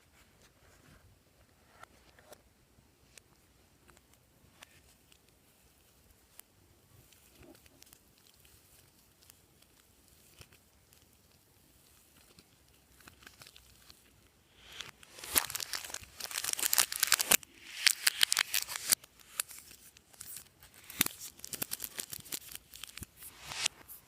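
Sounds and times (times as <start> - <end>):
loud crinkling and crackling: 7.0 - 24.0.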